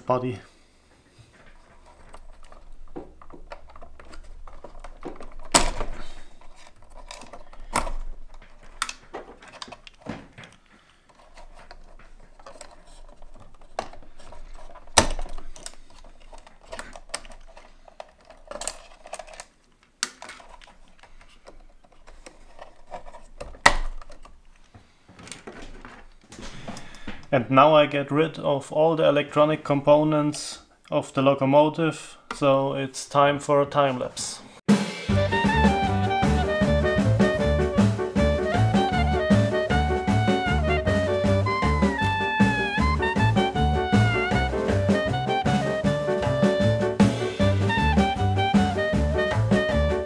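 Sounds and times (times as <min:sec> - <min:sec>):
handling rustle: 0:00.2 - 0:27.4
plastic parts clicking and knocking: 0:01.3 - 0:27.4.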